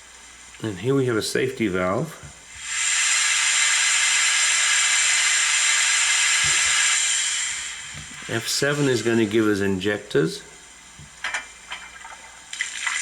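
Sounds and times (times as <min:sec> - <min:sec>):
steam safety valve hissing: 0:01.3 - 0:11.7.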